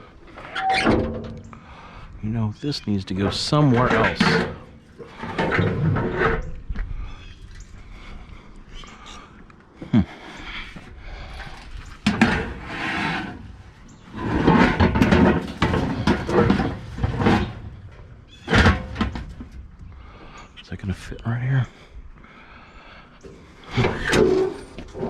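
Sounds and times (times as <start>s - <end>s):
scrap metal scraping and clattering: 3.1s - 6.6s, 11.2s - 19.7s, 23.2s - 25.0s.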